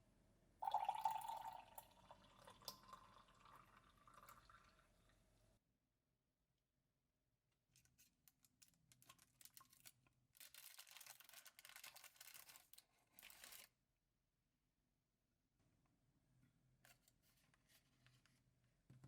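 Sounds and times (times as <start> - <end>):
crisp rustling: 8.9 - 13.7.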